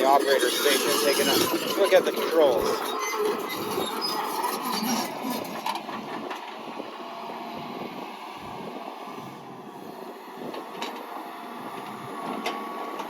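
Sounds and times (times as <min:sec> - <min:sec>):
track chains clattering and squeaking: 0:00.0 - 0:06.3
diesel engine running: 0:00.0 - 0:13.0.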